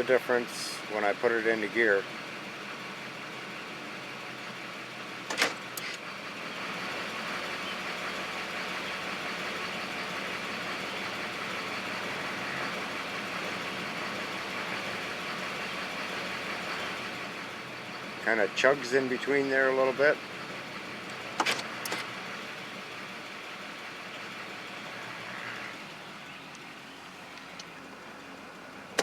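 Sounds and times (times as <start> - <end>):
diesel engine idling: 0.0 - 29.0
gear shift clicks: 5.3 - 6.0, 21.0 - 22.1.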